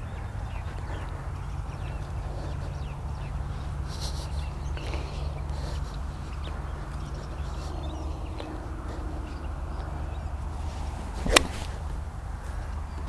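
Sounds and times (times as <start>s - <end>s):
low outdoor hum: 0.0s - 13.0s
golf club striking ball: 10.6s - 12.1s
golf club swish: 10.6s - 12.1s.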